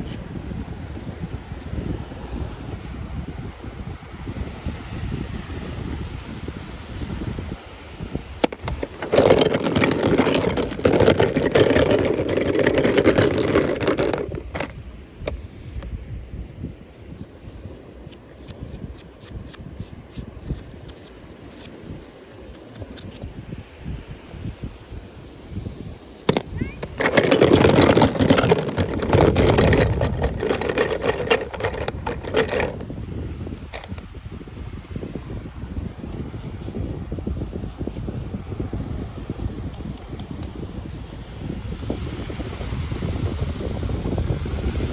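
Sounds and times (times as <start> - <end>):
toy packaging rustling and scraping: 8.4 - 14.8, 20.4 - 23.3, 26.3 - 32.9, 33.7 - 34.0
wrapping crinkling: 26.8 - 32.8.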